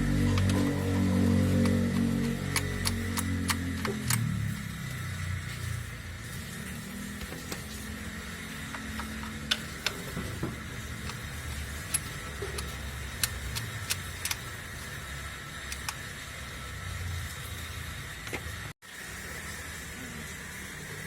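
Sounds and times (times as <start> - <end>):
low hum: 0.0 - 14.4.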